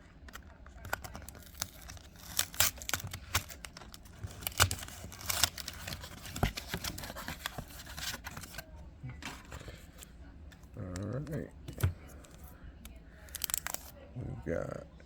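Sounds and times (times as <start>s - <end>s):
cards being handled: 0.2s - 14.0s
foil pack tearing and crinkling: 0.3s - 8.6s, 13.2s - 13.9s.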